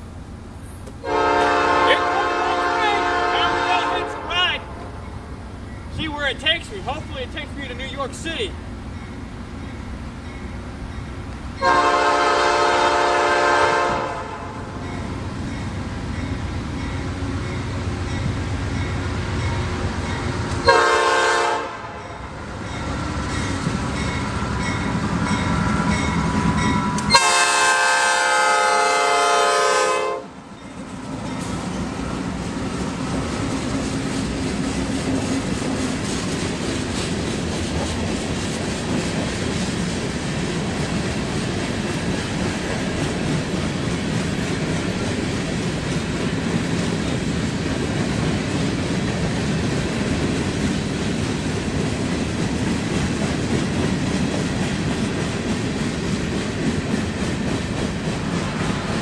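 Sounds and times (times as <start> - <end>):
freight train rumbling: 0.0 - 59.0
locomotive air horn blasts: 1.0 - 4.9, 11.6 - 14.7, 20.6 - 22.2, 26.8 - 30.4
crossing bell dinging: 8.9 - 11.8, 14.7 - 20.5, 21.9 - 27.5, 30.5 - 32.0.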